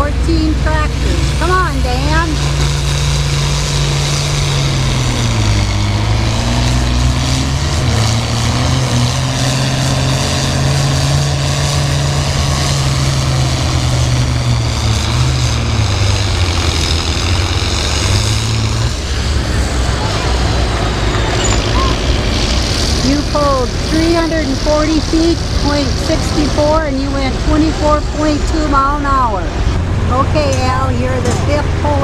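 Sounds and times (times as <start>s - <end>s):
tractor engine running at full throttle: 0.0s - 32.0s.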